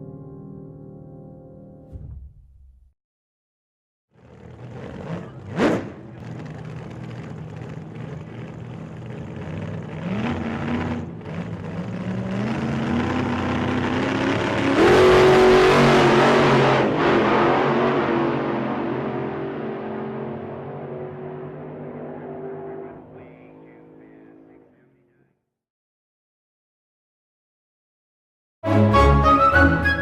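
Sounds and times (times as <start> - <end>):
car engine revving: 4.2 - 25.1.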